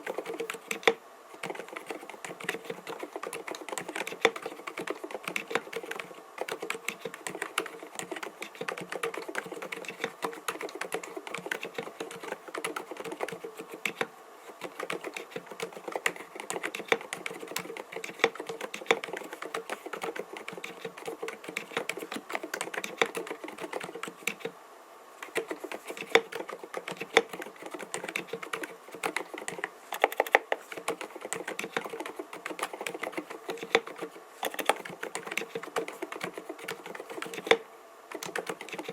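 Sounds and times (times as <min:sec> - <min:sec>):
fast typing on mechanical keyboard: 0:00.0 - 0:24.5, 0:25.2 - 0:38.9.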